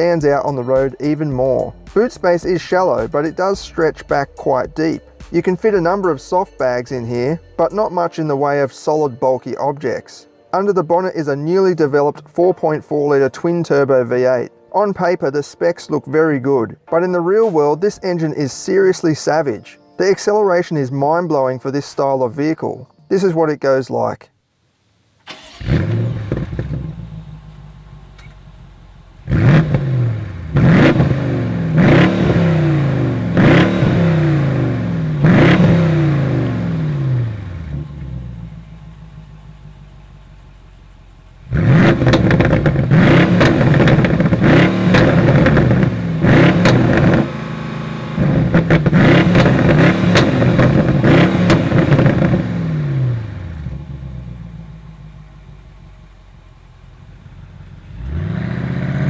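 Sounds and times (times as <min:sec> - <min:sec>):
car engine accelerating and upshifting: 0:25.3 - 0:27.4, 0:29.2 - 0:38.7, 0:41.4 - 0:54.4, 0:57.7 - 0:59.0.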